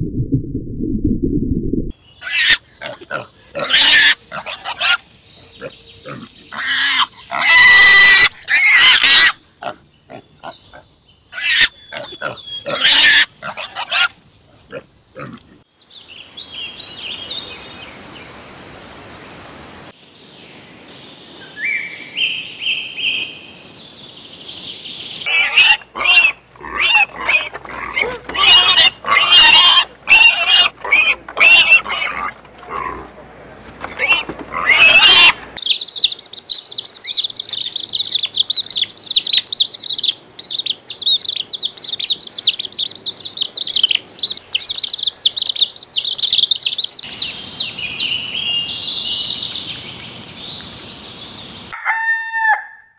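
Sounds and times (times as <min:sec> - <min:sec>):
outdoor background: 0:00.0 - 0:52.9
pigs squealing: 0:02.2 - 0:05.0, 0:05.6 - 0:09.8, 0:11.4 - 0:15.5, 0:25.3 - 0:33.1, 0:33.9 - 0:35.6.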